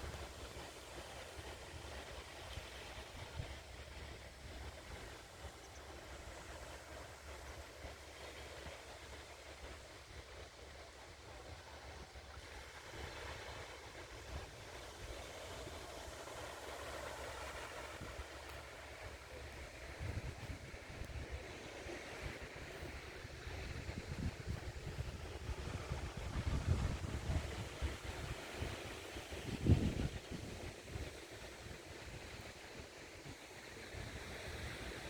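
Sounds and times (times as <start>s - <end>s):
wind buffeting microphone: 19.6s - 31.2s.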